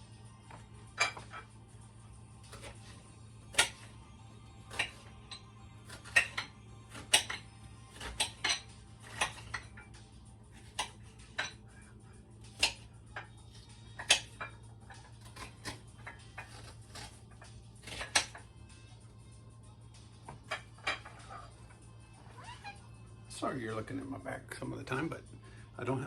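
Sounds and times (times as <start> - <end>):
low steady hum: 0.0 - 26.0
utensils and dishes clinking: 0.5 - 1.5, 2.5 - 4.0, 4.7 - 11.8, 12.6 - 18.5, 20.3 - 21.8.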